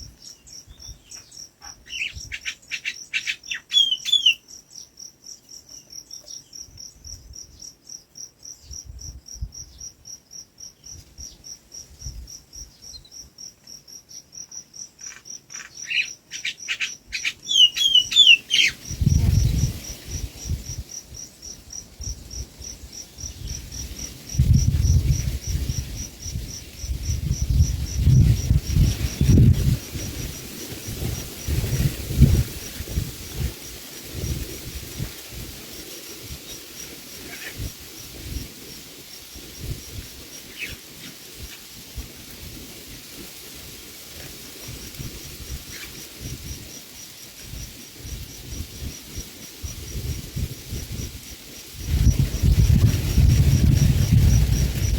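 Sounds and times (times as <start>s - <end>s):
insect chirping: 0.0s - 54.9s
low rumble on microphone: 18.9s - 20.9s, 23.2s - 33.5s, 47.4s - 54.9s.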